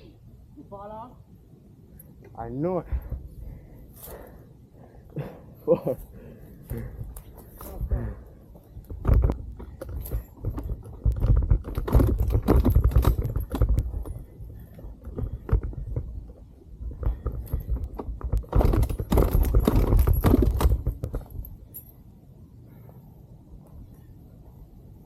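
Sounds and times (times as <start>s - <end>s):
dirt bike rattling and knocking: 8.0s - 21.9s.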